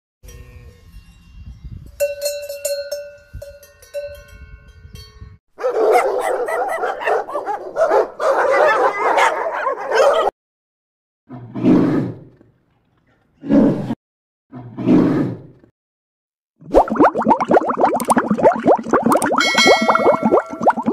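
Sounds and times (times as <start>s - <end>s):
cowbells clanking: 2.0s - 5.2s, 19.4s - 20.8s
dogs barking: 5.6s - 10.4s.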